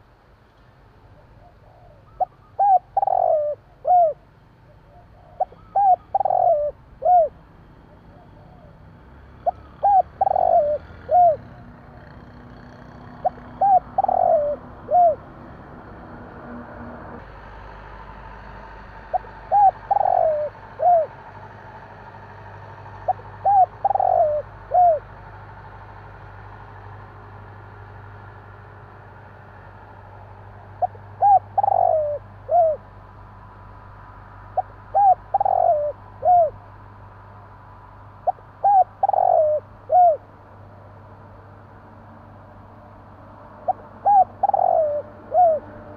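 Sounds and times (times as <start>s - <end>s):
dove cooing: 1.1s - 8.8s, 9.4s - 15.3s, 19.1s - 21.2s, 23.0s - 25.1s, 30.8s - 32.9s, 34.5s - 36.6s, 38.2s - 40.3s, 43.6s - 45.9s.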